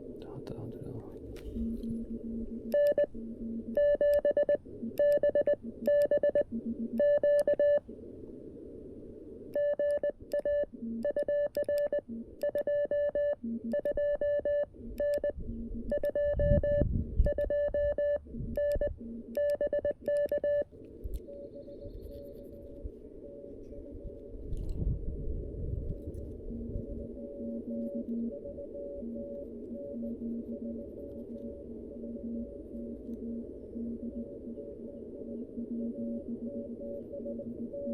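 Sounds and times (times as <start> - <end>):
fainter lower morse tone: 0.4 - 8.0, 9.5 - 37.9
morse code tone: 1.6 - 7.8, 9.6 - 20.7, 26.5 - 37.9.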